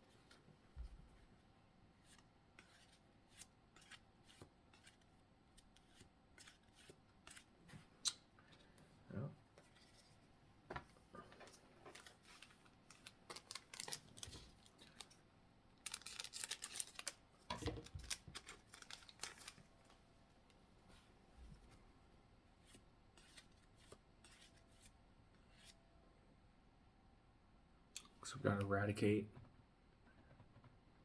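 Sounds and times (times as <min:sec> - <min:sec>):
trading cards clicking and rustling: 0:11.4 - 0:15.2, 0:15.8 - 0:19.6.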